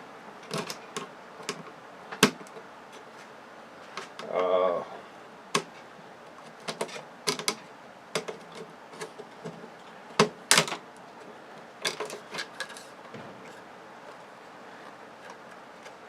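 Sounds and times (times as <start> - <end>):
clicks and knocks of small parts: 0.4 - 2.6, 6.4 - 14.2.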